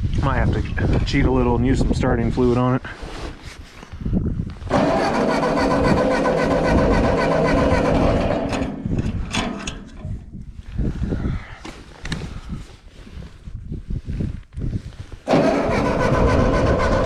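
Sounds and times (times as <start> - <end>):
tractor engine cranking: 4.7 - 10.2, 15.3 - 17.0.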